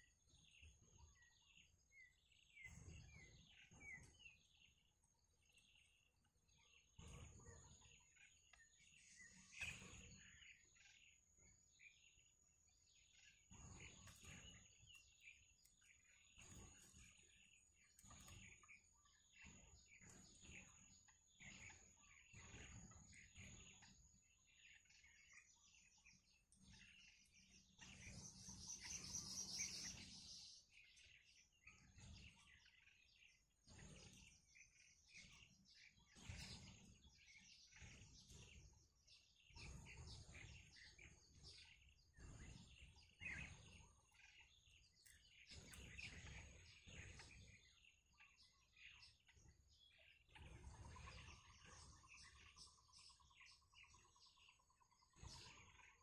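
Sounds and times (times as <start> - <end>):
bird chirps: 0.0 - 56.0.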